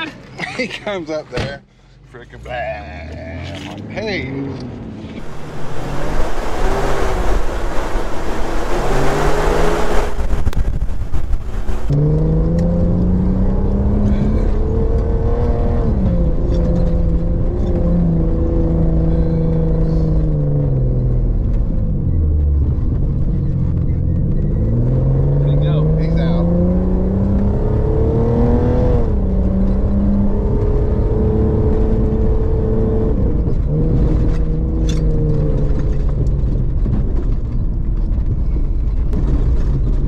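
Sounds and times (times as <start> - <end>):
off-road engine revving: 2.3 - 37.3
loud rushing noise: 5.2 - 11.9.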